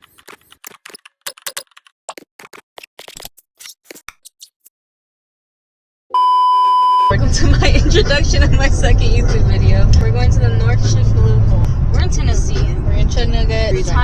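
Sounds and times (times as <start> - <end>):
quick irregular clicks: 0.0 - 4.5
loud steady beep tone: 6.1 - 7.1.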